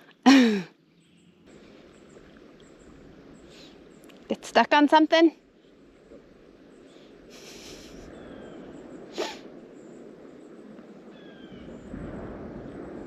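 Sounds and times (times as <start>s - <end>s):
outdoor background noise: 0.0s - 13.0s
short hiss: 7.3s - 8.1s, 9.1s - 9.4s.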